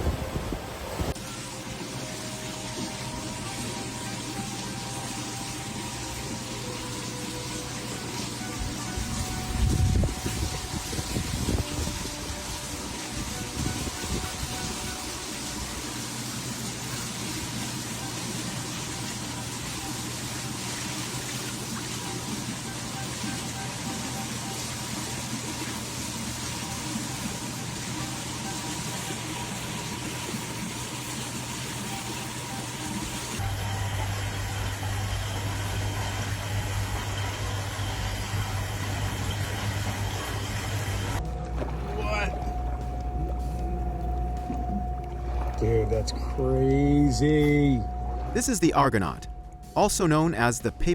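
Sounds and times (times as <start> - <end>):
rushing water: 0.0 - 46.5
low steady hum: 33.4 - 50.9.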